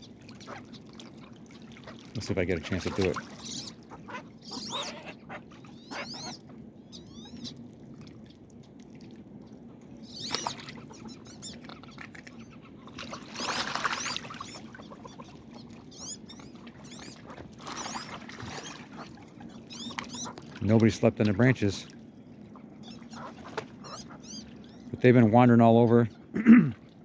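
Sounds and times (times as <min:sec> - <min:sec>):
ducks squealing whistles: 0:02.7 - 0:07.5, 0:15.9 - 0:20.4, 0:22.8 - 0:24.8.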